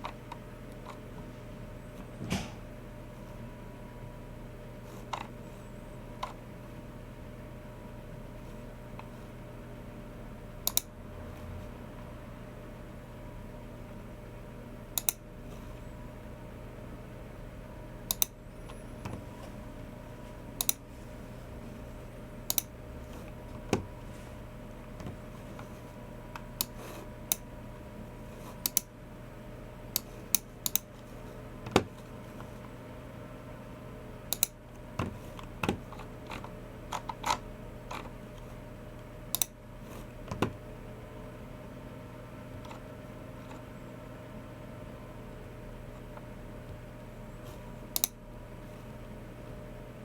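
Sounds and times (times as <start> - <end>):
faint steady hum: 0.0 - 50.0
mouse clicks: 15.0 - 15.2, 20.6 - 20.8, 22.5 - 22.7, 39.3 - 39.6, 48.0 - 48.2
keyboard and mouse clicking: 18.1 - 18.4, 29.9 - 30.9, 48.0 - 48.2.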